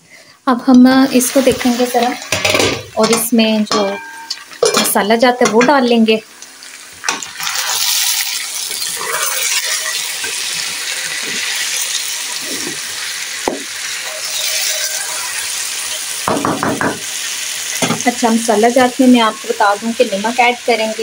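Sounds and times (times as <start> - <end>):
potatoes sizzling in a pan: 0.1 - 21.0
spatula scraping a pan: 7.4 - 13.0, 14.0 - 16.2.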